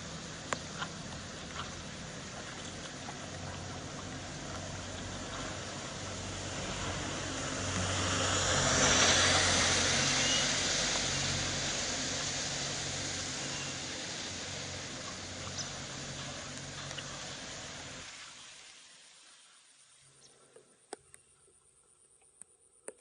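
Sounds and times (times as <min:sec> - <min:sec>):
vehicle passing by: 0:00.0 - 0:18.1.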